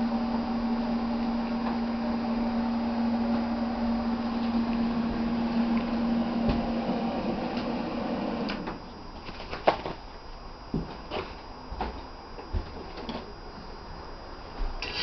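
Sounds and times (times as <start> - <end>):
welder humming and hissing: 0.0 - 9.2.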